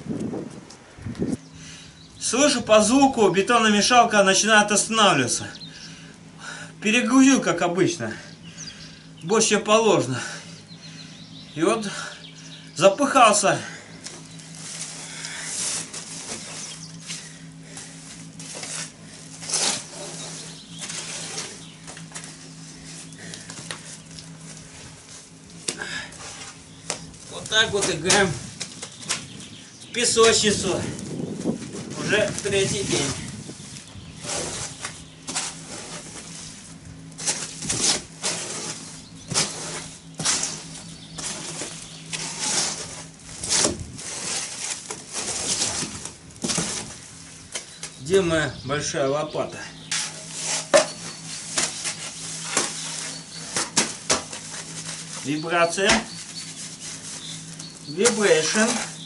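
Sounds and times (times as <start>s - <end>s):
concrete mixer humming: 0.0s - 59.0s
concrete rushing and scraping: 14.4s - 29.3s, 30.0s - 48.2s, 49.7s - 59.0s.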